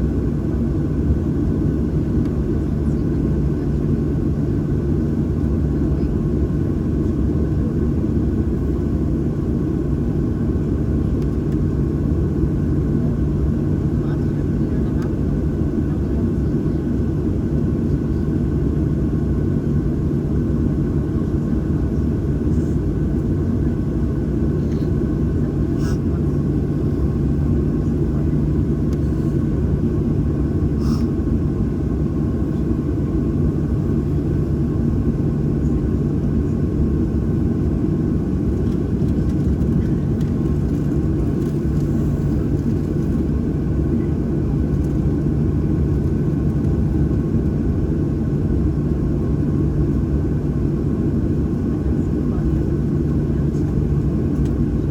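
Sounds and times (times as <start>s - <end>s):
airplane cabin rumble and hum: 0.0s - 54.9s.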